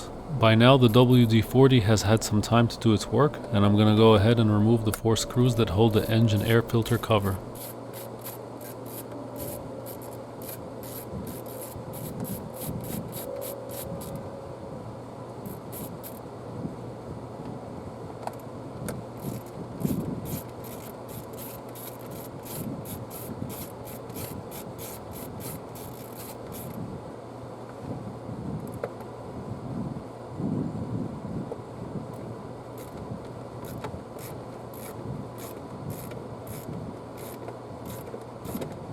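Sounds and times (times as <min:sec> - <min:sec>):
socket wrench clicking: 0:33.6 - 0:38.7.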